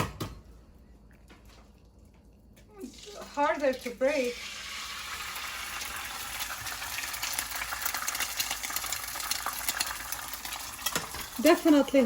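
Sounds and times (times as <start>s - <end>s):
butter sizzling in frying pan: 2.9s - 12.0s.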